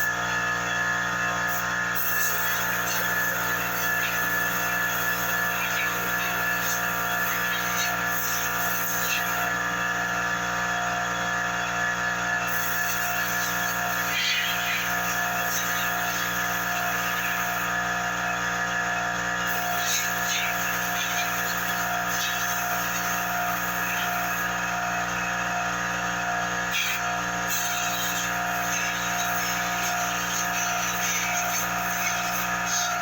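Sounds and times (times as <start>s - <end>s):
air compressor humming: 0.0s - 10.8s.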